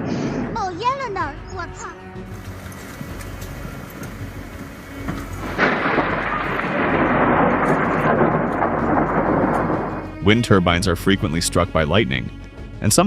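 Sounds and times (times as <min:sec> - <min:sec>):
rain hissing: 0:02.3 - 0:10.4
thunder clap with crackling rumble: 0:02.3 - 0:10.5.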